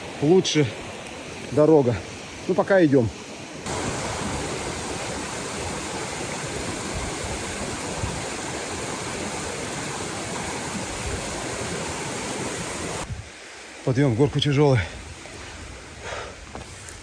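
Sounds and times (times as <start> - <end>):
river rushing over rocks: 3.6 - 13.7.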